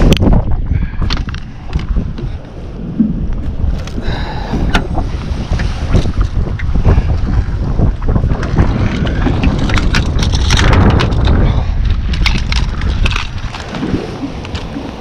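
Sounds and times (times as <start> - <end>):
wind buffeting microphone: 0.0 - 15.0
crackling clicks and knocks: 8.1 - 13.8.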